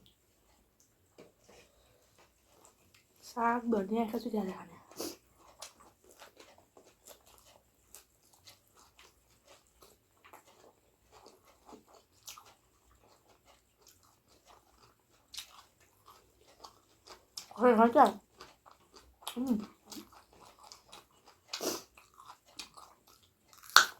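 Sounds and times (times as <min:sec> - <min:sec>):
chewing food: 0:00.0 - 0:03.4, 0:04.0 - 0:23.9
wet mouth clicks and smacks: 0:23.6 - 0:23.9.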